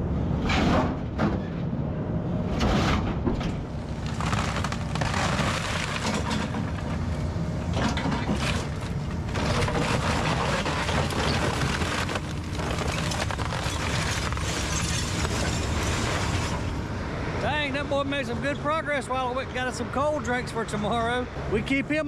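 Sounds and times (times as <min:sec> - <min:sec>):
excavator diesel engine under load: 0:01.8 - 0:18.8
crunching and crashing debris: 0:02.5 - 0:16.8.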